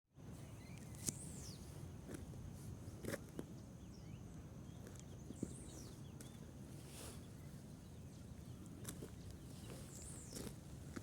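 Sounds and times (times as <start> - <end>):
bird chirps: 0.3 - 1.8, 3.3 - 10.7.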